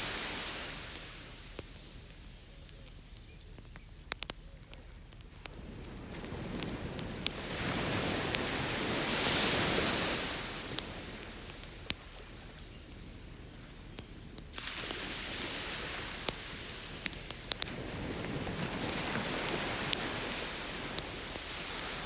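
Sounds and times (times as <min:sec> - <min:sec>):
ocean wave breaking: 0:00.0 - 0:01.3, 0:05.8 - 0:11.7
campfire crackling: 0:00.0 - 0:22.0.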